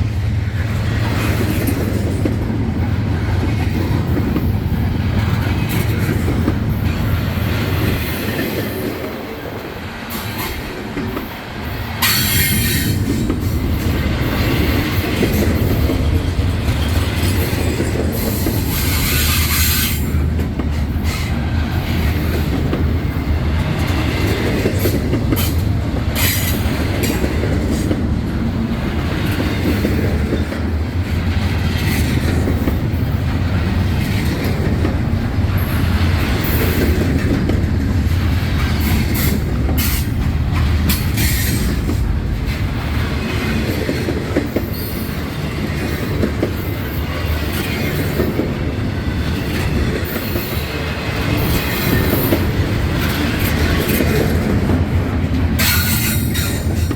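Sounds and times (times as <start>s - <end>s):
freight train rumbling: 0.0s - 56.9s
wheels clacking on rails: 0.0s - 56.9s
wheels squealing on rails: 5.2s - 27.9s, 35.5s - 56.9s.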